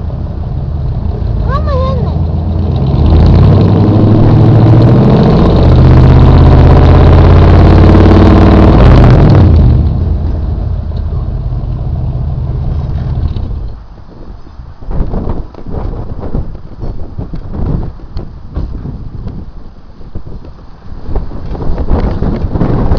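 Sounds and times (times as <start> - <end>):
loud car exhaust revving: 0.0 - 13.8.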